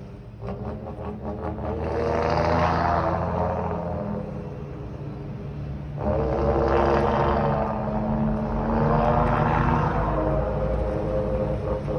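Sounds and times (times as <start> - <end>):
truck engine revving: 0.0 - 11.9.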